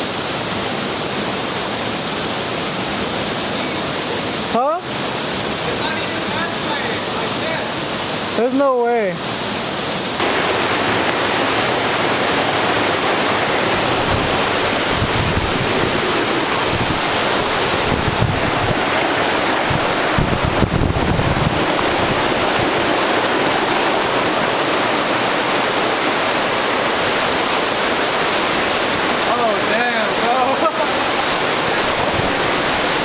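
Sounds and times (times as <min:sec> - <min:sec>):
waterfall rushing: 0:00.0 - 0:33.0
wind buffeting microphone: 0:13.5 - 0:24.4, 0:31.2 - 0:33.0.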